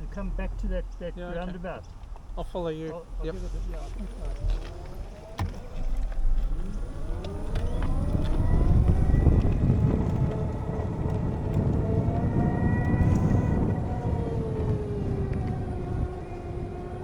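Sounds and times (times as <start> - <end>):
wind rumble on microphone: 0.0 - 17.0
electric motorcycle motor whine: 4.1 - 17.0.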